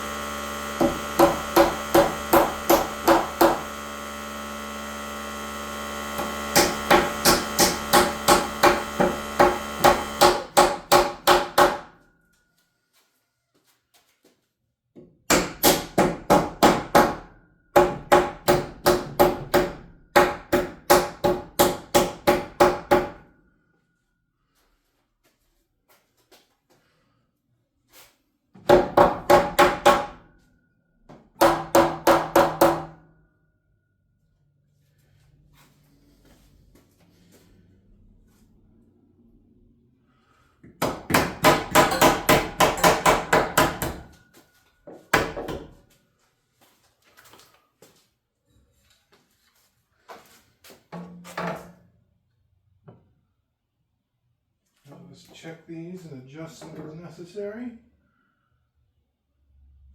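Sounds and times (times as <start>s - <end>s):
hammer striking nails in wood: 0.7s - 4.1s, 6.1s - 11.9s, 15.3s - 23.2s, 28.6s - 30.2s, 31.1s - 33.0s, 40.7s - 44.2s, 45.1s - 45.8s.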